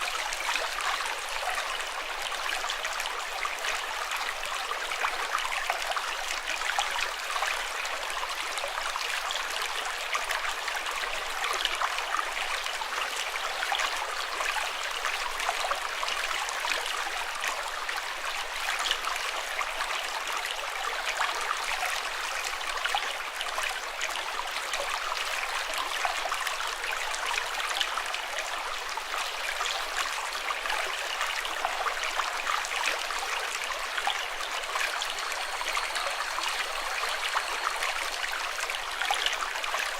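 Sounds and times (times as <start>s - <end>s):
water flowing and splashing: 29.9s - 39.9s.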